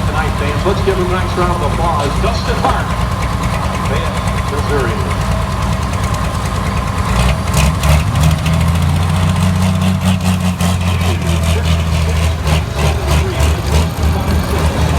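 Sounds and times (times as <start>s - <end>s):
tractor diesel engine running: 0.0s - 14.9s.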